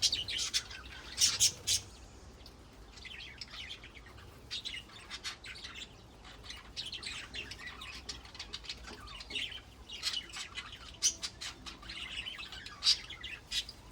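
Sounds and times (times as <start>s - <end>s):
budgerigars chattering: 0.0s - 2.0s, 2.9s - 13.9s
sharp loud bird calls: 0.0s - 2.0s.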